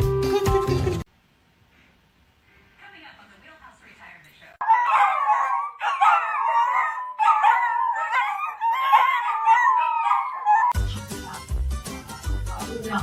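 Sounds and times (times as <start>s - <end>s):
dog howling: 4.6s - 10.8s
music with heavy bass beat: 10.8s - 13.0s.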